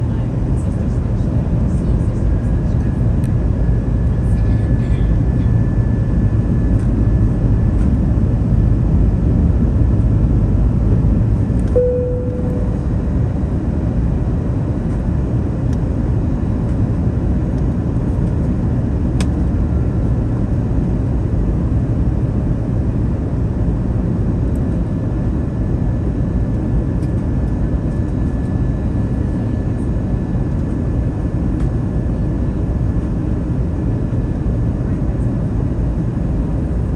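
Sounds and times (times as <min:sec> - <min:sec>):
airliner cabin rumble: 0:00.0 - 0:36.9
faint high whine: 0:11.6 - 0:13.9
brief single tone: 0:11.7 - 0:13.2.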